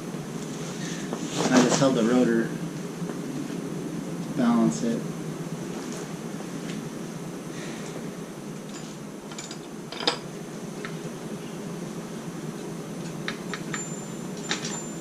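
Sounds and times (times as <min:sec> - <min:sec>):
steady low hum: 0:00.0 - 0:15.0
metal tools clicking and clinking: 0:13.5 - 0:15.0.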